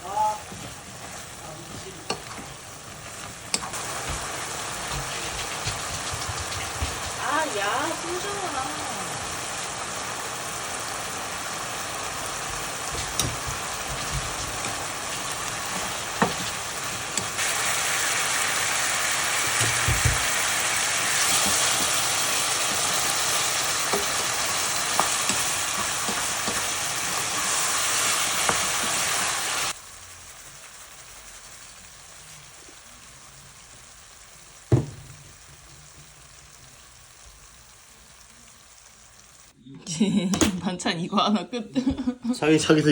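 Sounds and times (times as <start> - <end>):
faint hiss: 0.0 - 40.1
food sizzling in frying pan: 0.0 - 42.9
single knock: 34.7 - 35.2.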